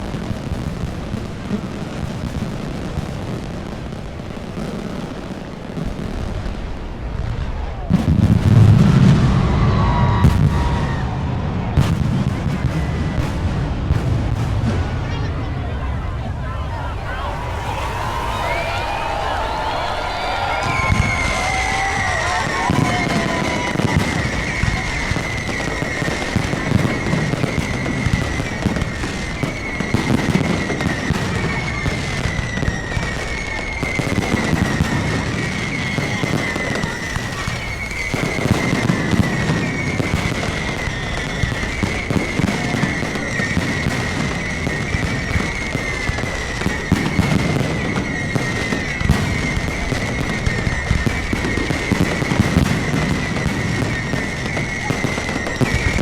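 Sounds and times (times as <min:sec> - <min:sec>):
fireworks crackling bangs: 0:00.0 - 0:56.0
high falling whistle: 0:16.2 - 0:34.8, 0:35.6 - 0:43.0.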